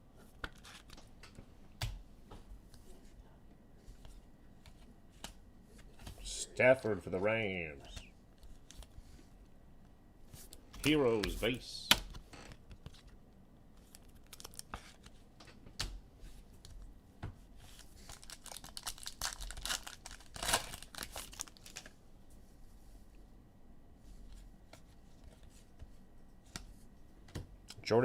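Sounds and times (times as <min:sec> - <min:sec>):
foil wrappers torn and crinkled: 0:13.9 - 0:15.0, 0:17.8 - 0:21.9.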